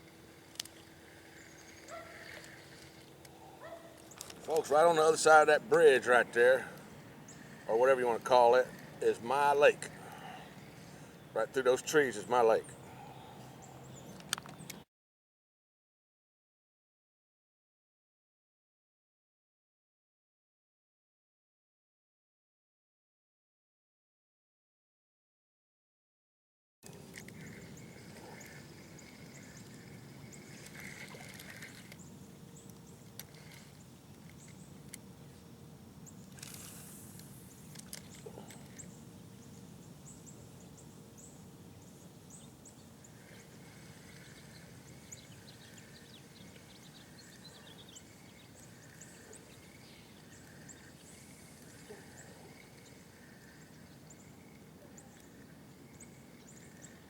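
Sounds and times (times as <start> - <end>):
falling bird calls: 0.6 - 14.8, 37.6 - 57.0.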